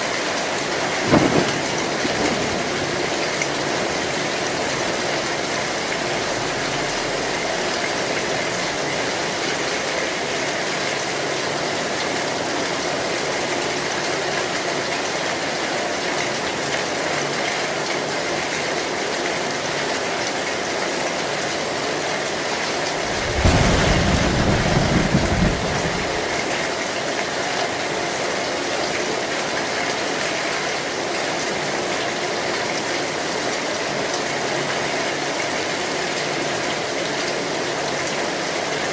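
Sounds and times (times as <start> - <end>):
heavy rain on a metal roof: 0.0 - 38.9
low rumble of thunder: 0.6 - 8.8, 22.9 - 26.8.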